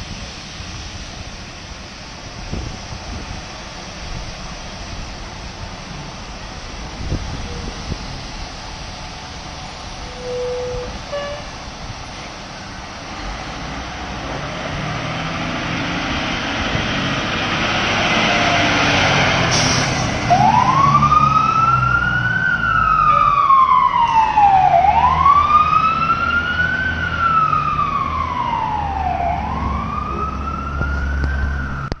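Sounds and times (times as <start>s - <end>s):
road noise: 0.0s - 32.0s
fire engine motor: 0.1s - 32.0s
siren wailing: 20.3s - 32.0s.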